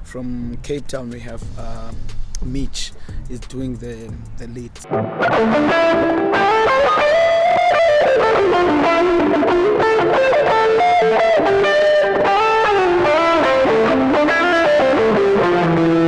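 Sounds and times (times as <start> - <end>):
electric guitar solo: 4.8 - 16.0.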